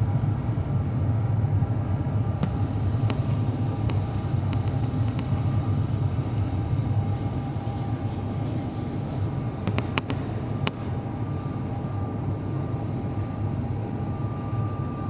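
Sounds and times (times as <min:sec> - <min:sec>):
airliner cabin engine rumble: 0:00.0 - 0:15.0
light clicks: 0:02.4 - 0:05.5, 0:09.6 - 0:10.8.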